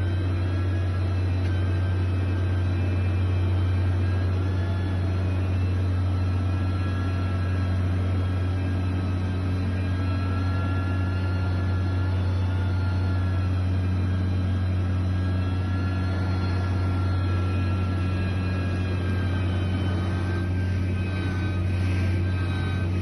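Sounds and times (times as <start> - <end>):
diesel engine humming: 0.0 - 23.0
faint high whine: 0.0 - 23.0.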